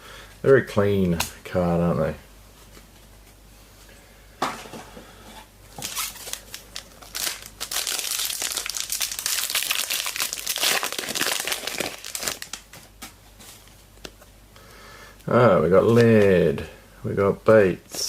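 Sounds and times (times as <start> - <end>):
wrapper tearing: 5.8 - 12.7
wrapper crinkling: 5.8 - 12.9.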